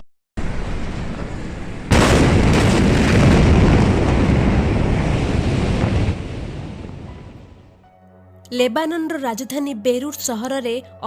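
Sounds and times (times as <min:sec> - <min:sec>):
loud explosion blast: 0:00.4 - 0:07.7
heavy rumble: 0:00.4 - 0:07.8.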